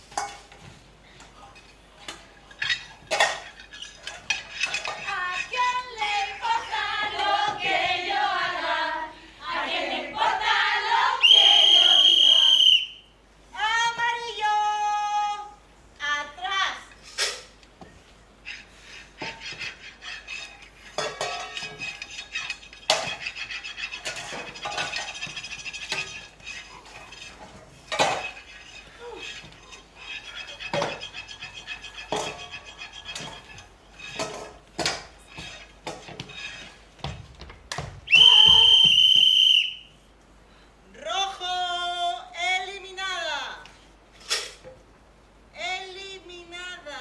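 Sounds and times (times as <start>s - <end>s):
dishes and cutlery clattering: 0.0s - 5.7s, 18.4s - 37.2s
shrill steady high tone: 11.2s - 13.0s, 38.1s - 39.9s.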